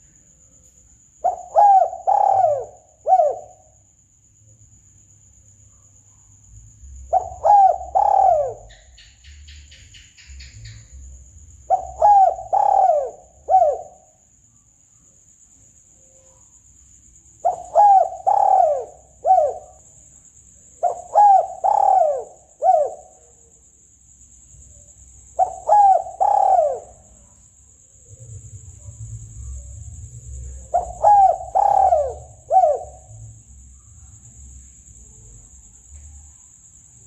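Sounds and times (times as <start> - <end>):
dove cooing: 1.2 - 3.7, 7.0 - 9.0, 10.9 - 14.2, 17.4 - 19.8, 20.8 - 23.2, 25.4 - 27.2, 29.6 - 33.2.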